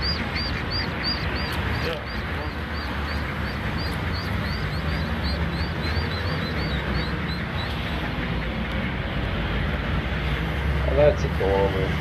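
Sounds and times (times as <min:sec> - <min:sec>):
small birds peeping: 0:00.0 - 0:08.1
low outdoor rumble: 0:00.0 - 0:12.0.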